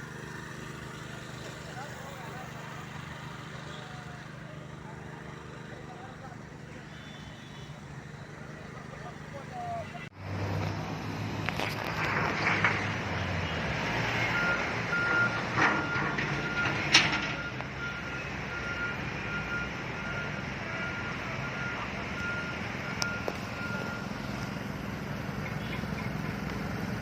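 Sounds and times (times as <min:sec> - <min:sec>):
street traffic noise: 0:00.0 - 0:27.0
reversing alarm beeping: 0:14.1 - 0:24.4.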